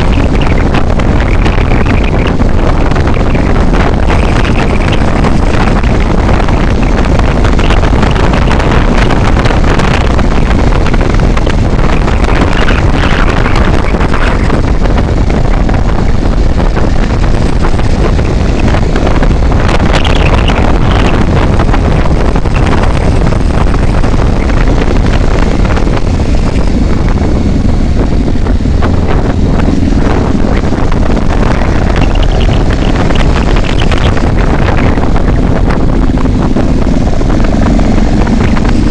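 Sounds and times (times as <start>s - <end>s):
vehicle running and road noise: 0.0s - 38.9s
wind rushing over microphone: 0.0s - 38.9s.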